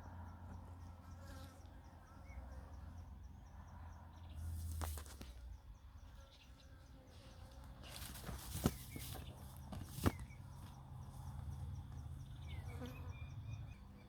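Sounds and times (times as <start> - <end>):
insects buzzing: 0.0 - 14.0
brief rustle: 7.8 - 10.3.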